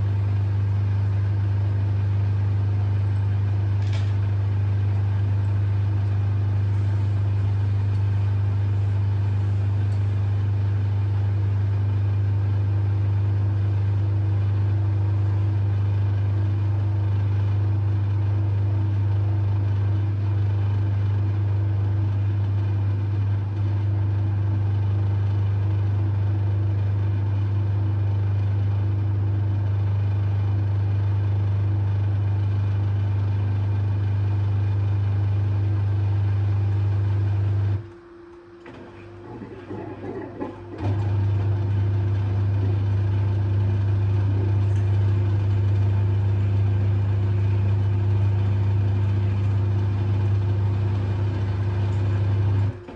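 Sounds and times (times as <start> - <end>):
washing machine humming: 0.0 - 52.9.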